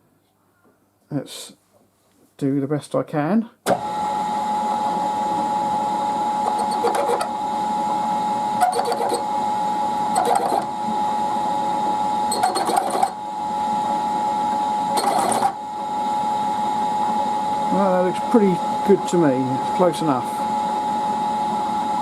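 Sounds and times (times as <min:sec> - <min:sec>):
machine spindle whine: 0:03.7 - 0:22.0
tool cutting metal: 0:06.4 - 0:07.4, 0:08.6 - 0:09.3, 0:10.1 - 0:10.7, 0:12.3 - 0:13.2, 0:14.9 - 0:15.6.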